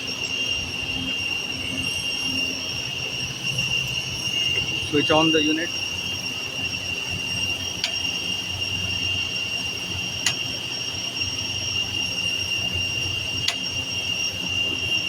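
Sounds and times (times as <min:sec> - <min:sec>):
machinery hum with high whine: 0:00.0 - 0:15.0
circuit breaker clicks: 0:07.8 - 0:08.2, 0:10.2 - 0:10.5, 0:13.4 - 0:13.7.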